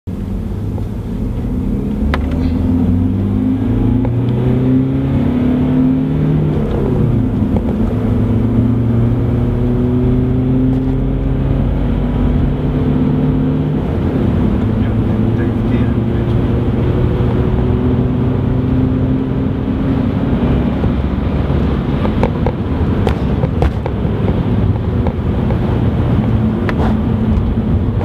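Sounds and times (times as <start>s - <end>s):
diesel car engine accelerating: 0.1s - 28.0s.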